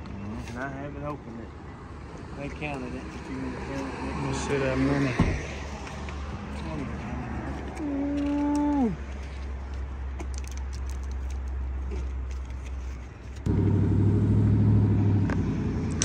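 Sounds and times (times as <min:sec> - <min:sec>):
vehicle engine running: 0:13.4 - 0:16.0.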